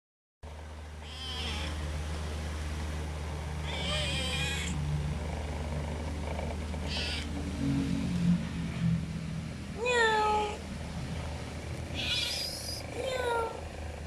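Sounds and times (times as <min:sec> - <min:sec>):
steady low hum: 0:00.5 - 0:14.0
cat meowing: 0:01.0 - 0:01.8, 0:03.6 - 0:04.8, 0:06.9 - 0:07.3, 0:09.8 - 0:10.6, 0:11.9 - 0:13.6.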